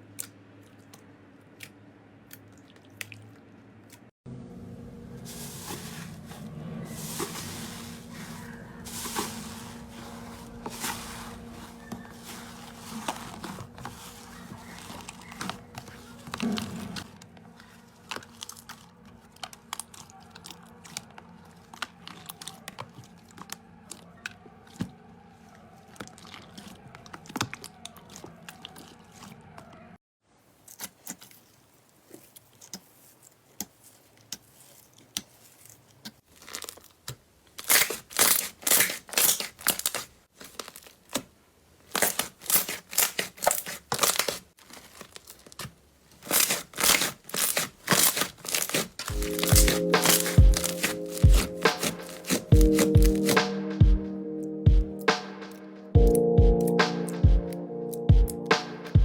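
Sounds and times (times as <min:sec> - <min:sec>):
slime crackling and popping: 0:30.6 - 0:53.5.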